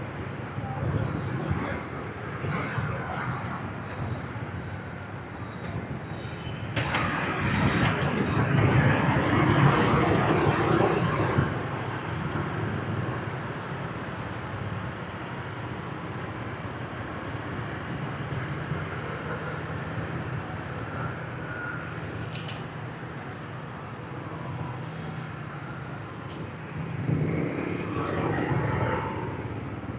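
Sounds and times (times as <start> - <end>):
road noise: 0.0 - 29.9
rush of noise: 6.8 - 13.3, 26.8 - 29.9
motorbike engines rumbling: 22.6 - 29.9.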